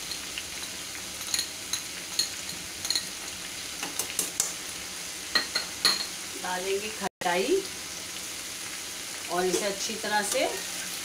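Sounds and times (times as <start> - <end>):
vegetables sizzling in oil: 0.0 - 11.0
spoon knocking and scraping pan: 3.8 - 4.6, 5.3 - 6.2.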